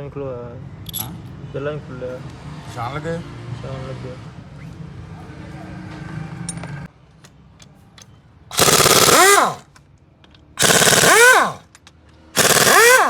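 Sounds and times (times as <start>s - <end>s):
air motor winding down: 8.5s - 9.6s, 10.6s - 11.7s, 12.4s - 13.0s
pneumatic impact wrench bursts: 8.5s - 9.7s, 10.6s - 11.7s, 12.4s - 13.0s.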